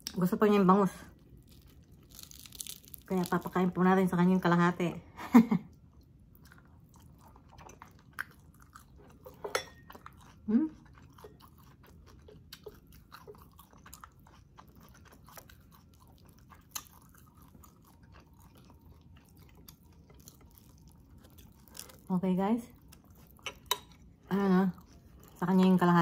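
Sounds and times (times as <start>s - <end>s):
crisp crunches: 1.4s - 3.8s
chewing with mouth clicks: 5.8s - 22.1s, 22.7s - 26.0s.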